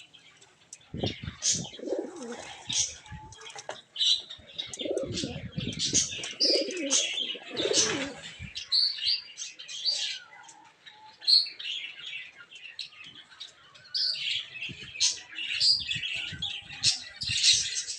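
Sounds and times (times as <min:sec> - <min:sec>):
birds chirping and tweeting: 0:00.0 - 0:17.9
pigeon cooing: 0:01.3 - 0:03.3, 0:04.6 - 0:08.3.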